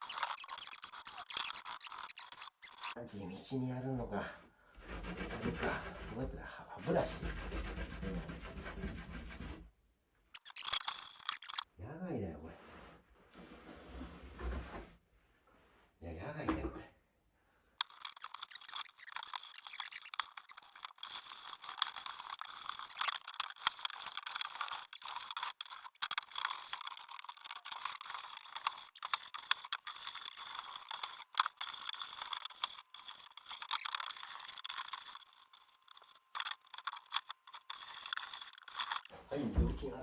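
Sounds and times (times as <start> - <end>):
toothbrush scrubbing wooden floor: 0.0 - 3.0, 4.8 - 9.7, 10.4 - 11.6, 17.8 - 39.9.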